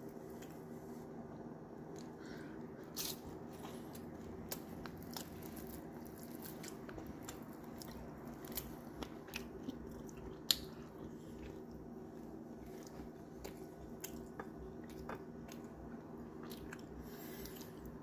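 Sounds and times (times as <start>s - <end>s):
low steady hum: 0.0s - 18.0s
person chewing food: 1.8s - 18.0s.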